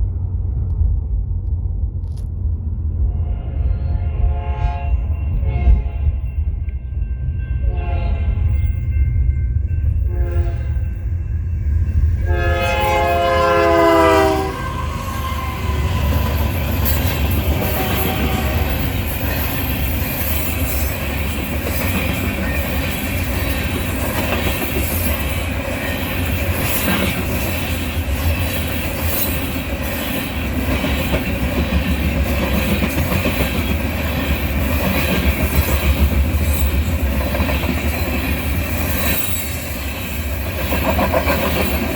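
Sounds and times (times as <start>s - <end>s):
train rumbling past: 0.0s - 41.9s
locomotive horn blasts: 3.3s - 6.3s, 7.6s - 8.6s, 10.1s - 10.9s, 12.2s - 16.3s, 17.4s - 19.1s
wheels clattering over rails: 15.7s - 41.9s.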